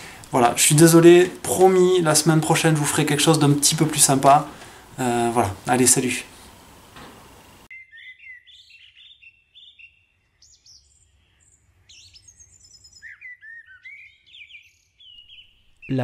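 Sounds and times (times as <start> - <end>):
songbirds chirping and whistling: 7.4 - 16.0.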